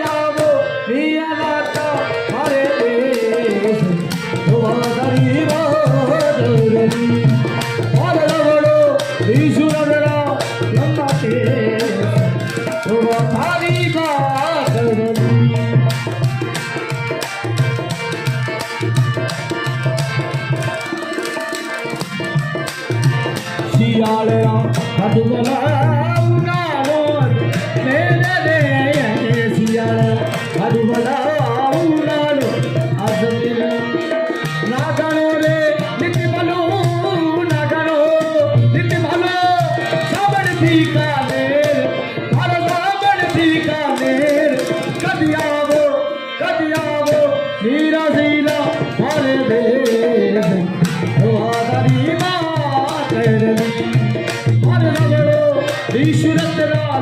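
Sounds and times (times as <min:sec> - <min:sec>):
person singing: 0:00.0 - 0:15.9, 0:23.5 - 0:57.0.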